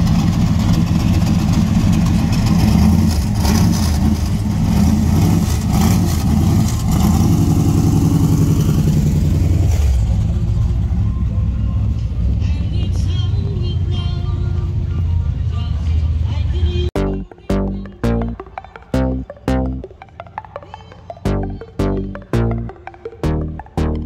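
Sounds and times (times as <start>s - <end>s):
car engine running loud: 0.0s - 12.5s.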